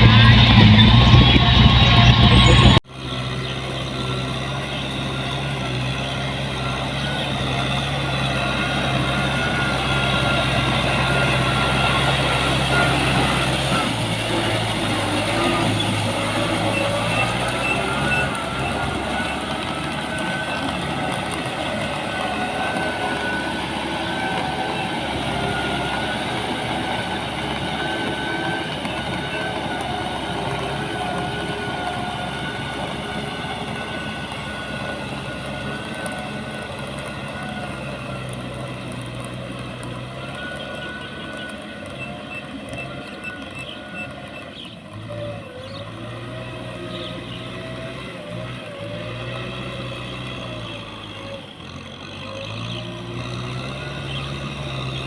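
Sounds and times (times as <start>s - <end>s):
wavering high whine: 0.0s - 2.8s
diesel engine running: 0.0s - 55.0s.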